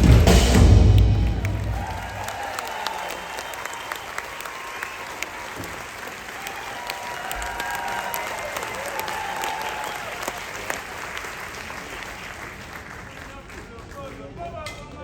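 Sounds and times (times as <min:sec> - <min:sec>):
audience clapping: 0:00.0 - 0:14.5
voices cheering: 0:00.8 - 0:12.2.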